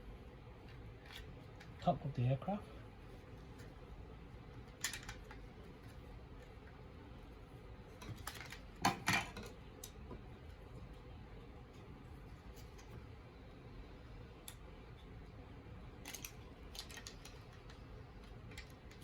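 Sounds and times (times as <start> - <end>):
plastic parts clicking together: 4.7 - 5.4, 16.0 - 19.0.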